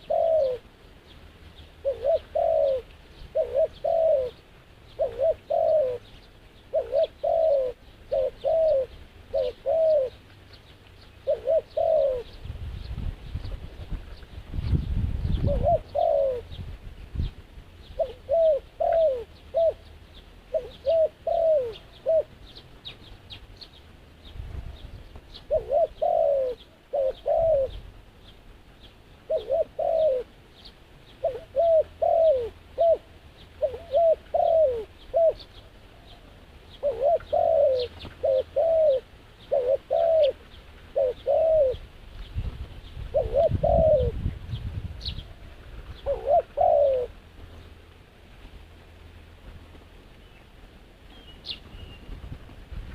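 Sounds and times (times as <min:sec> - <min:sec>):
doves cooing: 0:00.0 - 0:12.5, 0:13.4 - 0:16.7, 0:17.8 - 0:23.8, 0:24.6 - 0:28.4, 0:29.2 - 0:42.0, 0:43.0 - 0:44.4, 0:45.0 - 0:47.4
small birds chirping: 0:00.0 - 0:48.0, 0:48.9 - 0:52.4.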